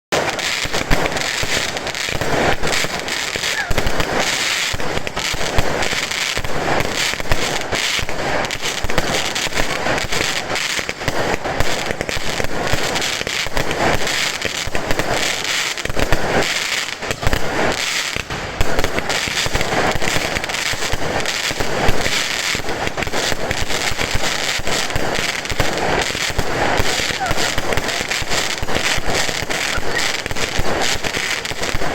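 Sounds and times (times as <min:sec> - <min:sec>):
fireworks banging and popping: 0:00.1 - 0:31.9.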